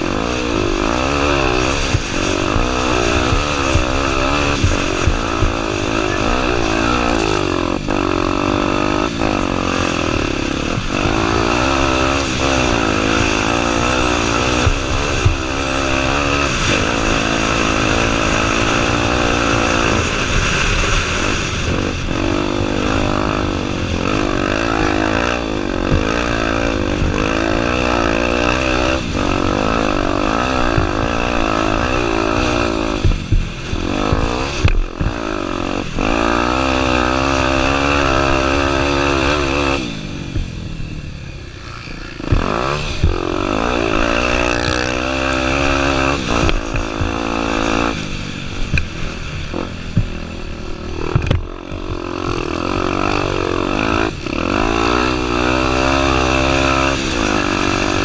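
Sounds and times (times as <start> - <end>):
motorcycle engine revving: 0.0 - 58.0
sharp knocks and clatter: 8.7 - 21.1, 25.5 - 40.6, 41.9 - 49.2, 51.0 - 52.8.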